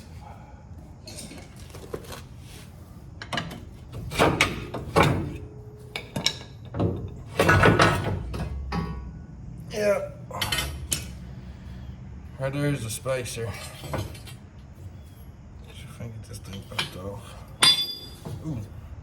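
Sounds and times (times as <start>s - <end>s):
metal tools clanking: 3.2s - 9.2s, 10.3s - 11.2s, 13.3s - 14.4s, 15.7s - 18.6s.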